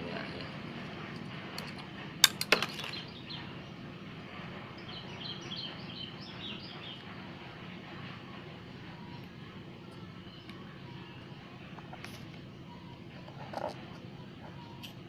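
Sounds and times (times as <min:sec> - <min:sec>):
small bird chirping: 0:04.8 - 0:07.1.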